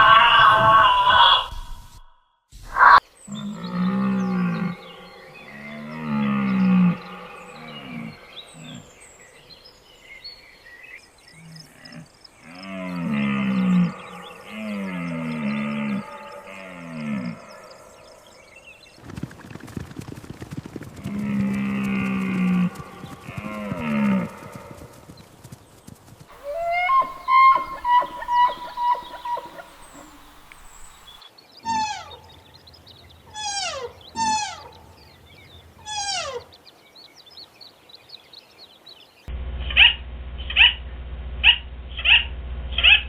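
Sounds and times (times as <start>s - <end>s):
high downward-sliding calls: 0.0s - 2.0s, 12.9s - 18.4s, 26.3s - 34.9s
short loud pitched animal calls: 0.0s - 2.0s, 26.3s - 32.3s, 33.3s - 34.7s
cow mooing: 3.3s - 8.8s, 12.5s - 18.0s.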